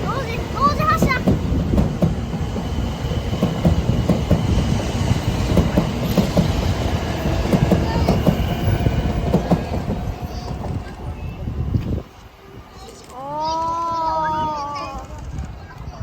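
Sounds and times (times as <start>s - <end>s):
train wheels clicking over rail joints: 0.0s - 11.1s
train rumble: 0.0s - 16.0s.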